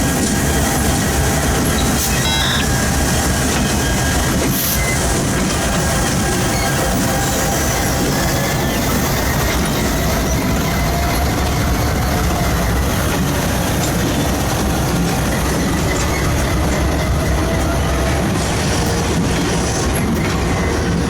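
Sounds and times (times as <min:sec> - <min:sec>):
freight train rumbling: 0:00.0 - 0:21.0
faint wheel squeal: 0:01.7 - 0:02.9.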